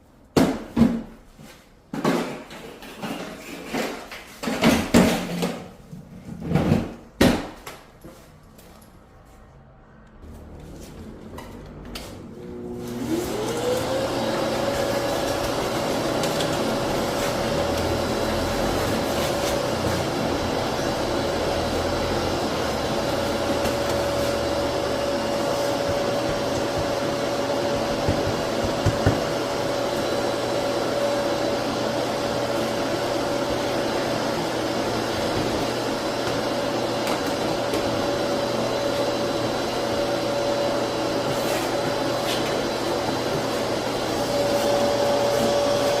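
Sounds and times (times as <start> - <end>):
shop vacuum whining: 10.2 - 46.0.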